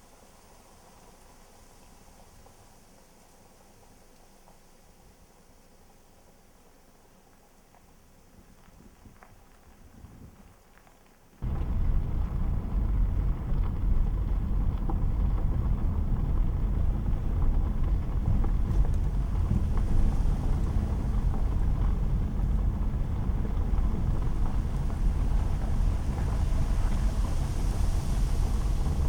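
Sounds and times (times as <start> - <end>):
low rumbling noise: 11.4 - 29.0.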